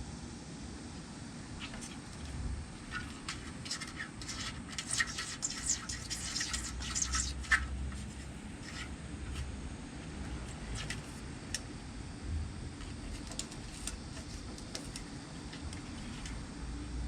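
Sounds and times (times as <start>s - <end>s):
kittens' claws scratching and scuffling: 1.6s - 9.6s, 10.2s - 11.6s, 12.7s - 16.6s.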